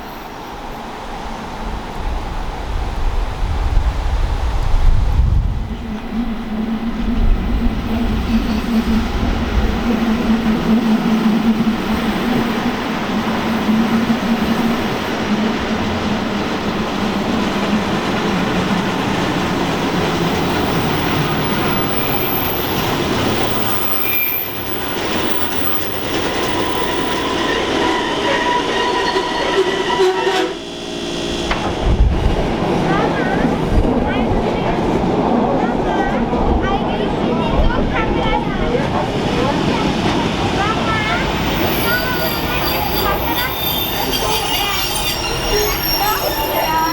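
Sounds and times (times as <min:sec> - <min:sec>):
steady train hum: 0:00.0 - 0:46.9
train wheels rumbling on rails: 0:00.0 - 0:46.9
high wheel squeals: 0:19.9 - 0:31.5, 0:41.0 - 0:46.9.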